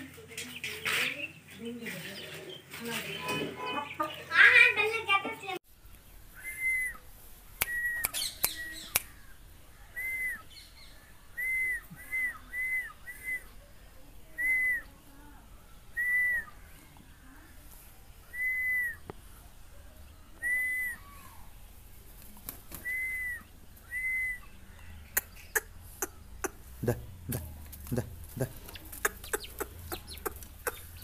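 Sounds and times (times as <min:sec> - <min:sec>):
whistled bird calls: 0:06.3 - 0:13.7, 0:14.3 - 0:15.0, 0:15.9 - 0:16.7, 0:18.2 - 0:19.1, 0:20.4 - 0:21.4, 0:22.7 - 0:26.6
sharp clicks: 0:07.6 - 0:09.1, 0:28.7 - 0:30.9.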